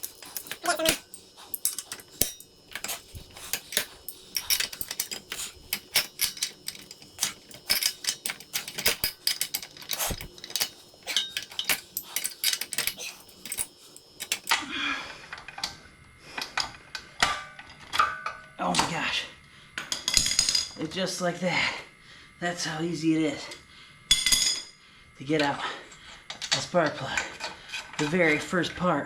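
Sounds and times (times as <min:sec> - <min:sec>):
metal tools clicking and clinking: 0:00.0 - 0:14.6.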